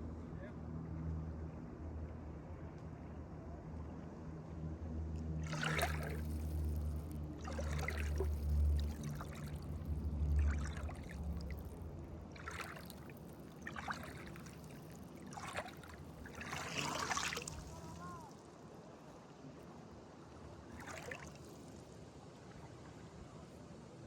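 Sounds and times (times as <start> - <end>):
lake water splashing: 5.4 - 18.4, 20.6 - 21.9.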